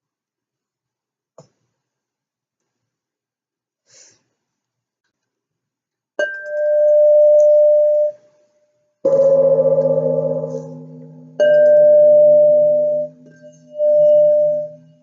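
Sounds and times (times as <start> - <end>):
singing bowl tone: 6.3 - 8.2, 9.1 - 15.0
deep gong ringing: 9.1 - 13.2.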